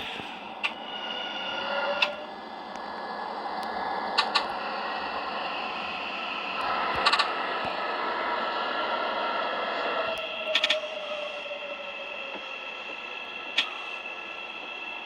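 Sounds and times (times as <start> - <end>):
subway train running noise: 0.0 - 15.0.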